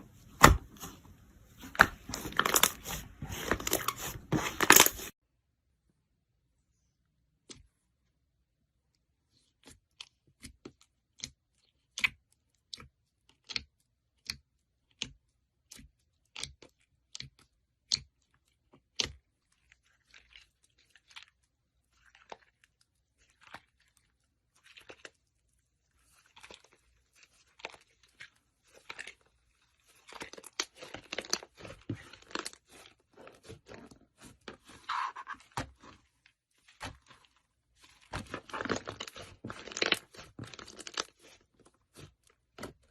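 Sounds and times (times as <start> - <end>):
slime popping and squishing: 1.6 - 5.1, 28.8 - 42.9.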